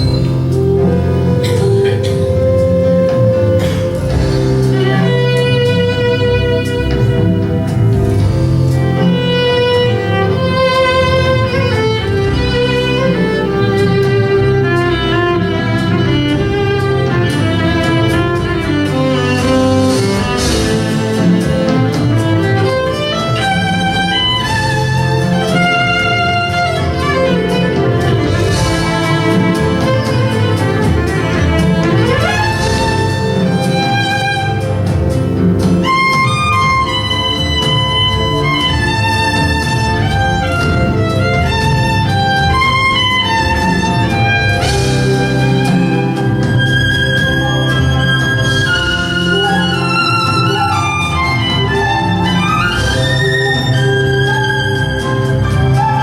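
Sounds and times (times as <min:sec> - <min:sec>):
sustained low accompaniment: 0:00.0 - 0:56.0
violin melody: 0:00.0 - 0:56.0.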